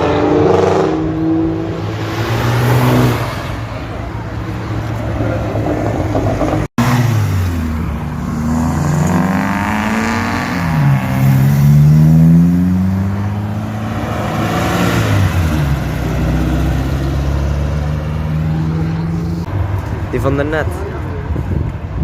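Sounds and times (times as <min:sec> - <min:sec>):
car engine accelerating: 0:04.9 - 0:19.6.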